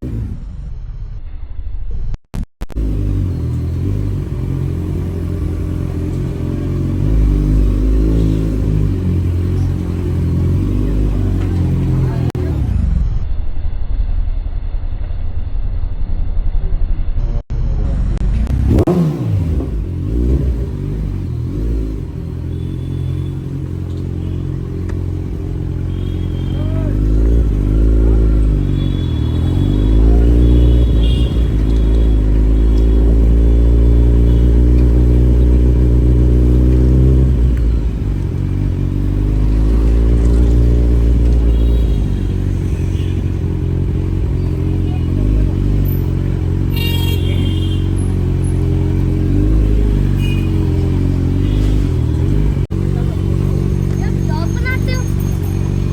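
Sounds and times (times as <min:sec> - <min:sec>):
motorcycle engine revving: 0:00.0 - 0:00.8, 0:02.7 - 0:13.2, 0:17.5 - 0:55.9.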